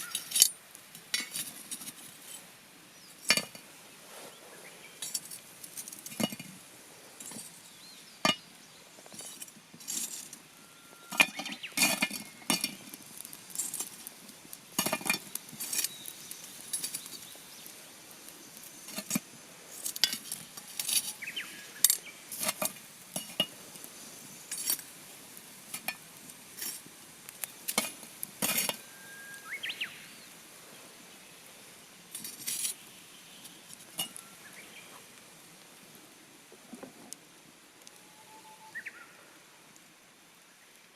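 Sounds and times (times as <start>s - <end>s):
utensils clinking against metal pot: 0.0s - 2.0s, 6.0s - 6.5s, 27.7s - 28.8s.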